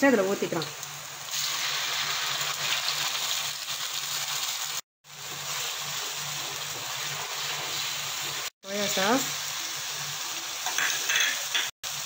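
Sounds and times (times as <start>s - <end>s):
paste sizzling in hot oil: 0.1s - 12.0s.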